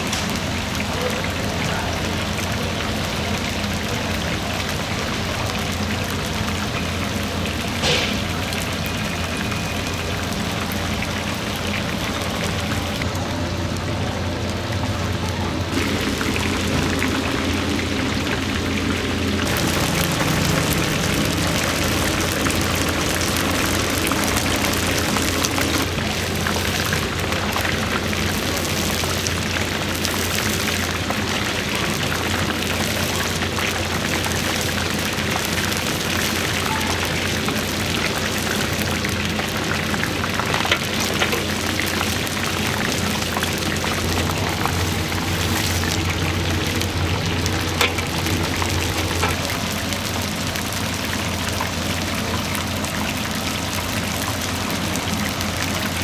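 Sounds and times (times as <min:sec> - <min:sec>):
oil sizzling in deep fryer: 0:00.0 - 0:56.0
low hum: 0:13.0 - 0:28.4.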